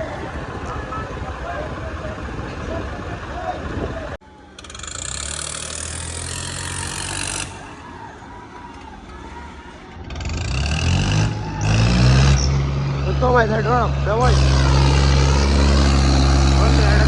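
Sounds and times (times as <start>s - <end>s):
diesel tractor engines running: 0.0s - 17.0s.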